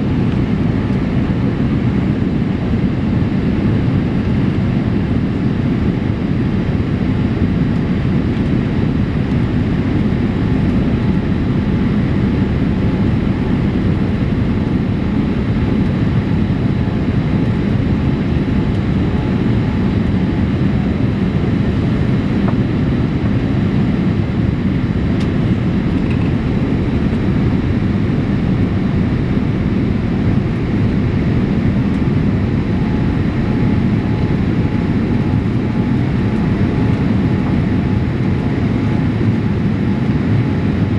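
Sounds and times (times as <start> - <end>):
aircraft cabin rumble: 0.0 - 40.9
faint steady tones: 25.6 - 40.9.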